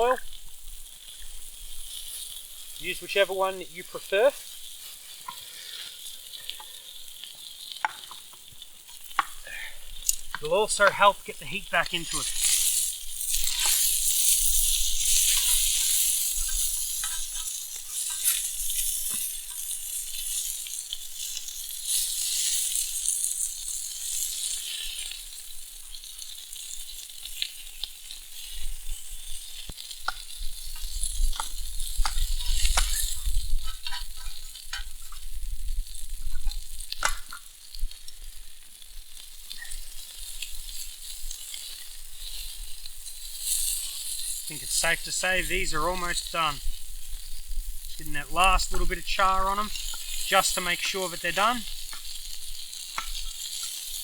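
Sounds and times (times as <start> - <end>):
food sizzling in oil: 0.0 - 54.0.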